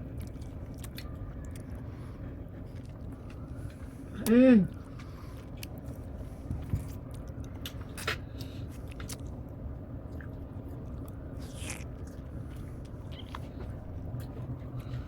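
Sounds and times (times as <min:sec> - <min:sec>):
person chewing food: 0:00.0 - 0:04.0, 0:04.7 - 0:15.0.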